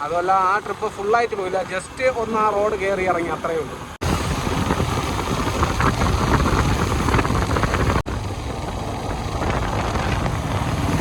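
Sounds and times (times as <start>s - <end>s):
motorcycle engine running: 4.0s - 11.0s.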